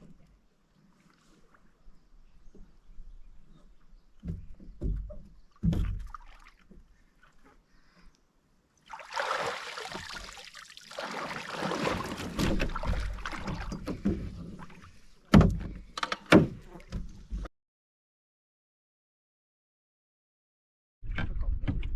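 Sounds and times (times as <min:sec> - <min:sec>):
hollow knocks on canoe hull: 0:04.2 - 0:06.2, 0:15.3 - 0:17.1
rushing splashing water: 0:08.9 - 0:13.7.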